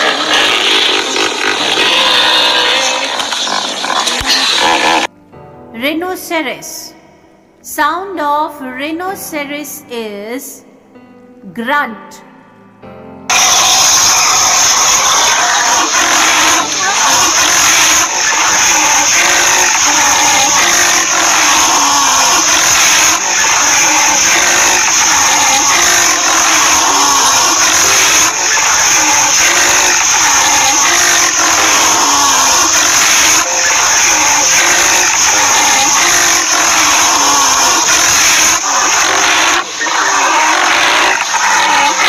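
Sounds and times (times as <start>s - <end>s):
rhinoceros grunting: 13.3s - 42.0s.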